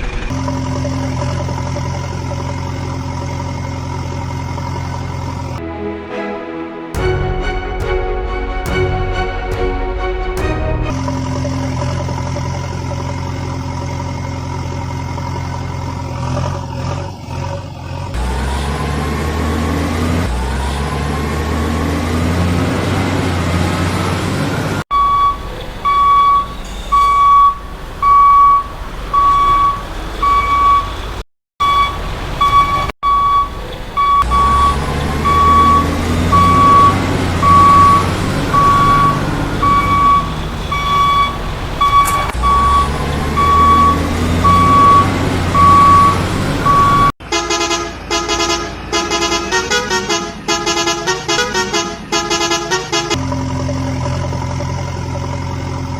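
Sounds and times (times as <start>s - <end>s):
truck engine revving: 0.0s - 6.0s, 7.0s - 55.9s
reversing alarm beeping: 24.9s - 47.1s.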